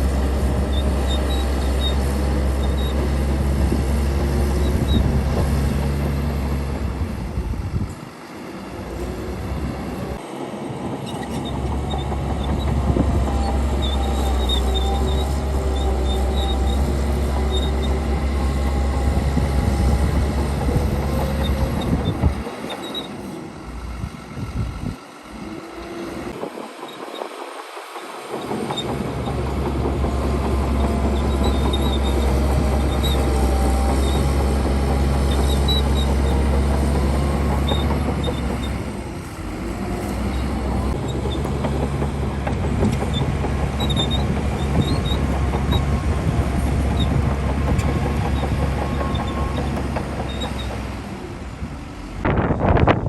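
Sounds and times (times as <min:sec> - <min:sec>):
earthmoving machinery diesel engines: 0:00.0 - 0:53.0.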